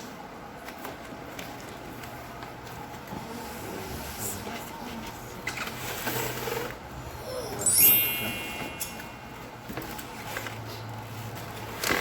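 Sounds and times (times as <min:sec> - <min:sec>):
bright high chime: 0:07.4 - 0:09.7
low steady hum: 0:07.5 - 0:10.0.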